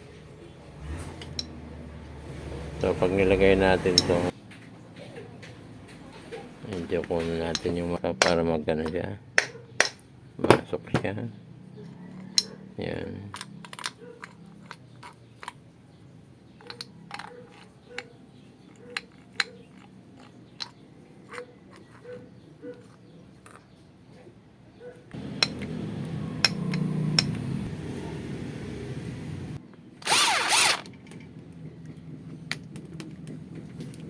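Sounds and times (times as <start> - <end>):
metal parts clicking: 13.3 - 15.6, 16.6 - 18.1, 30.0 - 31.3
power tool motor running: 30.0 - 30.9.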